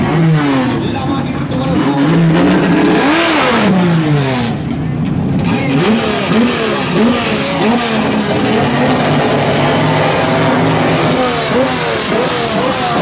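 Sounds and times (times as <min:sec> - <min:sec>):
racing car engine revving: 0:00.0 - 0:13.0.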